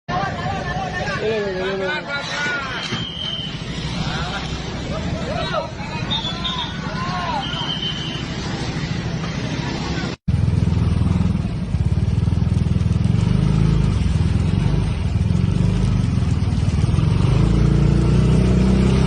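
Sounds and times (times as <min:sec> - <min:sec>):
motorcycle engine running: 0:10.3 - 0:19.0.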